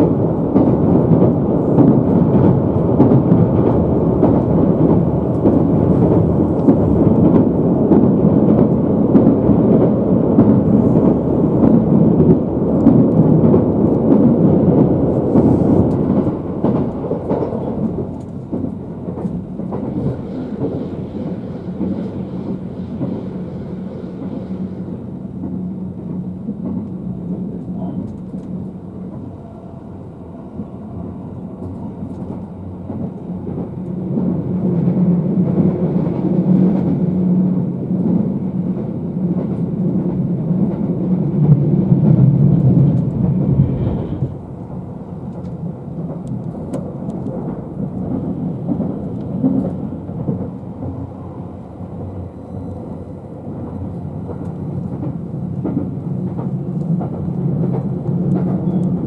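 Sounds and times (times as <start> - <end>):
electric train interior rumble: 0.0 - 59.0.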